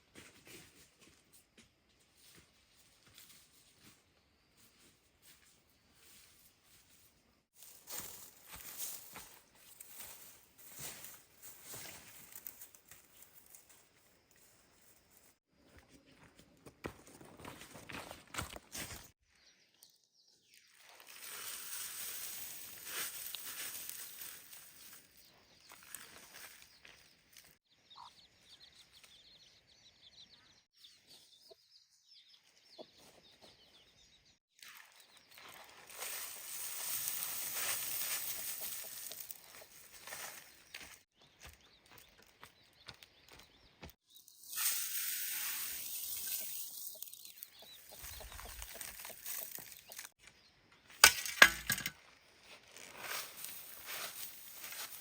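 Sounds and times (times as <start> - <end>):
small birds chirping: 18.9 - 44.7, 45.4 - 51.0.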